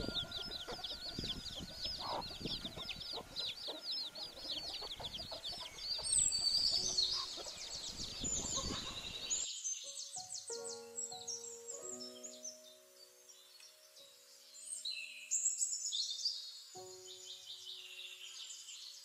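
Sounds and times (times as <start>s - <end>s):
chicks peeping: 0.0s - 9.5s.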